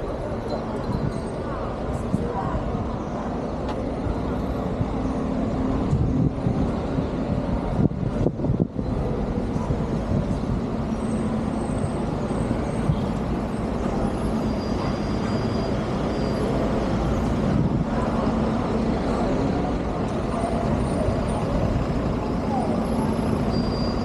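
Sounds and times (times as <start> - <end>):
road noise: 0.0 - 24.0.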